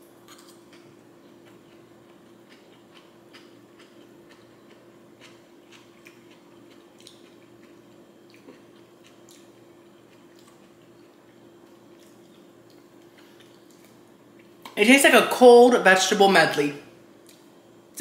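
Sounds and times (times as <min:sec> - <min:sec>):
mouth clicks while chewing: 0:02.5 - 0:09.5.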